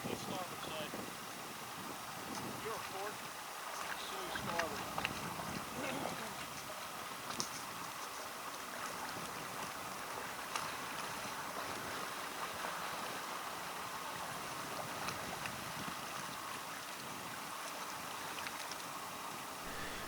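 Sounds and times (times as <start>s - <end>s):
water lapping against boat hull: 2.2s - 20.0s.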